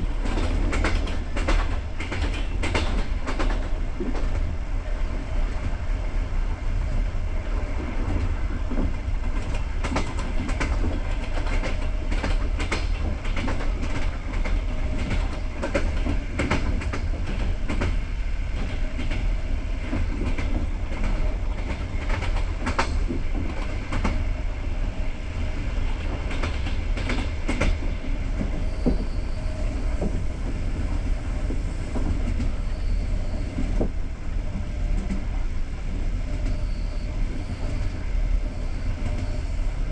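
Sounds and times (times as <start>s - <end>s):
wheels clacking over rail joints: 0.0s - 4.5s
train carriage rumbling: 0.0s - 39.9s.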